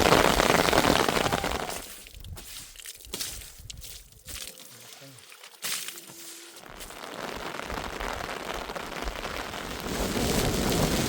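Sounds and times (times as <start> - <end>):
heavy rain falling: 0.0 - 1.9, 6.7 - 11.0.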